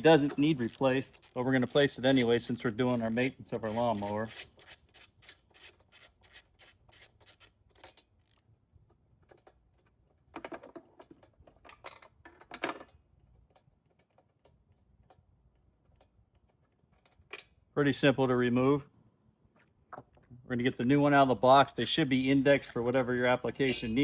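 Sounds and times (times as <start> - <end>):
ratchet wrench clicking: 0.5 - 8.4
tools scraping and clattering: 23.5 - 24.0.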